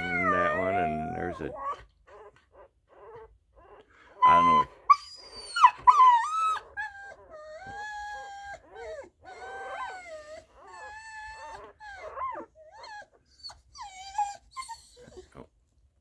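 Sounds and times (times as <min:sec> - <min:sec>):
puppies whining cries: 0:00.0 - 0:02.3, 0:02.9 - 0:15.3.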